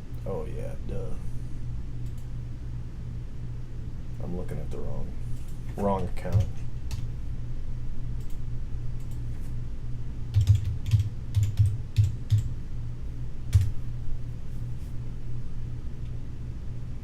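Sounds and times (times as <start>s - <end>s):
steady low hum: 0.0s - 17.0s
keyboard typing: 6.2s - 7.1s, 10.3s - 12.5s, 13.5s - 13.8s.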